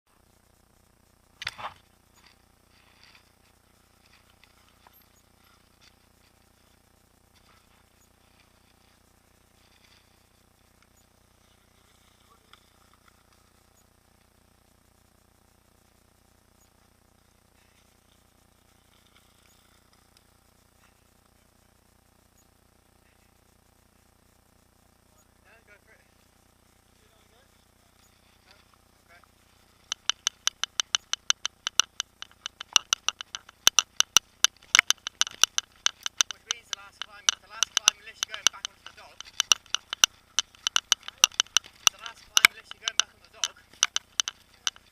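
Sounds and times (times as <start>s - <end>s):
rustles: 0.2s - 22.7s, 26.1s - 44.9s
faint scattered clicks: 28.0s - 44.9s
bicycle freewheel ticking: 28.5s - 44.9s.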